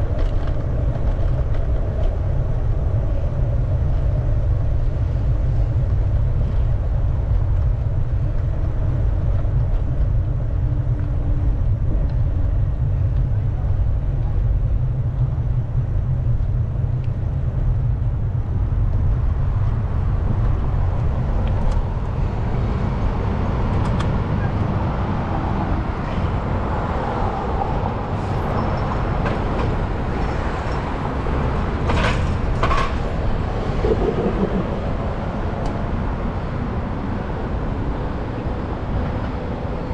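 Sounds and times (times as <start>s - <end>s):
street traffic passing: 0.0s - 39.9s
wind rumbling on microphone: 0.0s - 39.9s.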